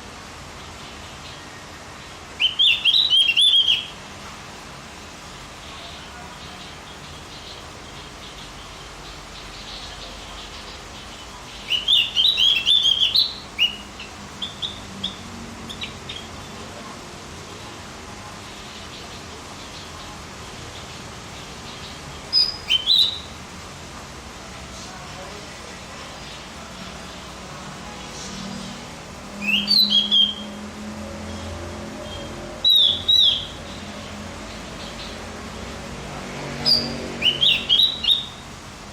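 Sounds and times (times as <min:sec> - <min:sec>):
bird twittering: 0:02.4 - 0:04.0, 0:07.0 - 0:16.5, 0:20.8 - 0:23.4, 0:29.4 - 0:30.6, 0:32.0 - 0:35.3, 0:36.6 - 0:38.6.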